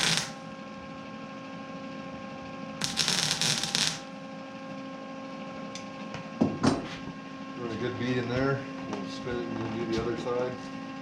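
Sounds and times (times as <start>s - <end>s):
welding arc crackling: 0.0s - 0.4s, 2.8s - 4.1s
steady welder hum: 0.0s - 11.0s.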